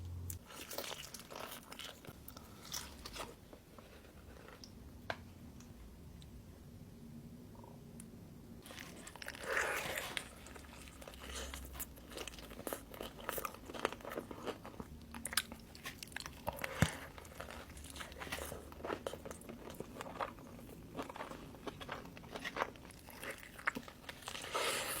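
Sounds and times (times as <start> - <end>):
crunchy chewing: 0.3 - 3.4, 8.6 - 25.0.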